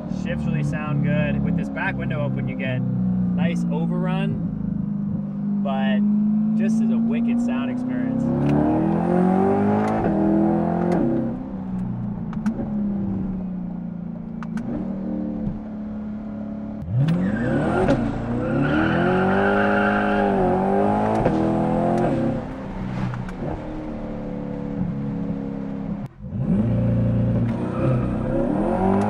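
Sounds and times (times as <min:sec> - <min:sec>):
car engine accelerating: 0:00.0 - 0:29.0
exhaust pops: 0:09.8 - 0:15.8, 0:20.2 - 0:26.7.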